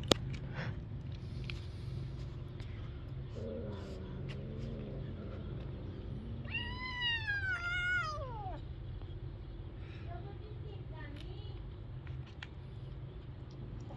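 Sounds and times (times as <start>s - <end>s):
kitten meowing: 6.4s - 8.6s.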